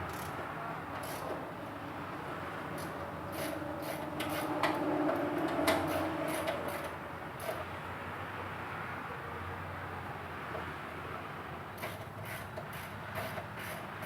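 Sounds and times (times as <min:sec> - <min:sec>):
scraping and rubbing under truck: 0:02.8 - 0:07.6, 0:11.8 - 0:14.0.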